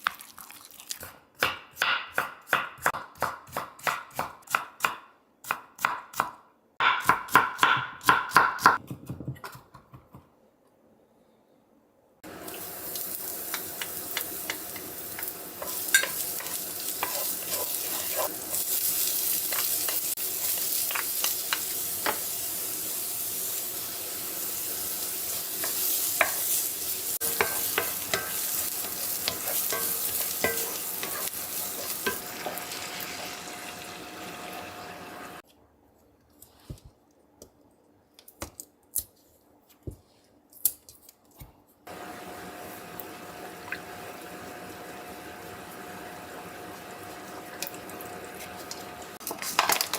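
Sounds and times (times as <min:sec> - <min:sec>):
food sizzling in a pan: 0:12.2 - 0:35.4, 0:41.9 - 0:49.9
utensil scraping a pan: 0:15.6 - 0:21.1, 0:27.2 - 0:32.6.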